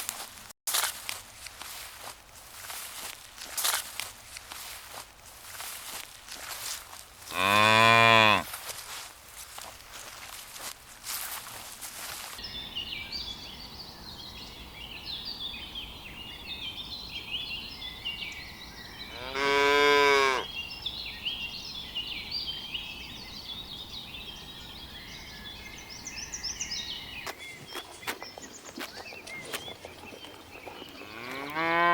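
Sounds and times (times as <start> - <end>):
cow mooing: 7.3 - 8.5, 19.1 - 20.5, 31.0 - 31.9.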